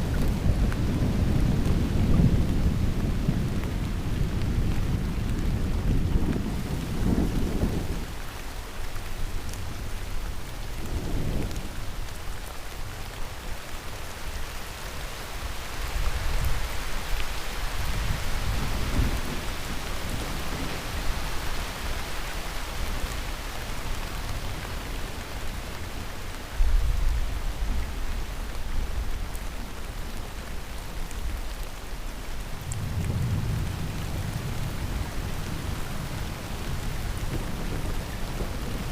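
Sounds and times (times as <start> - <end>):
heavy rain: 0.0 - 38.9
thunder rumbling: 32.6 - 38.9.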